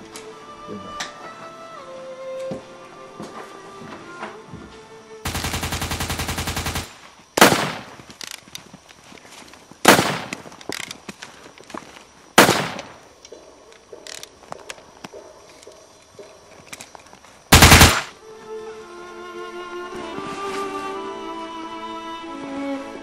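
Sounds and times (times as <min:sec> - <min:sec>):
automatic gunfire burst: 0:05.3 - 0:08.0, 0:09.9 - 0:10.4, 0:12.4 - 0:13.0, 0:17.5 - 0:18.1
loud single gunshots echoing: 0:07.4 - 0:08.0, 0:09.9 - 0:10.3, 0:12.4 - 0:13.0
small clicks: 0:08.1 - 0:09.2.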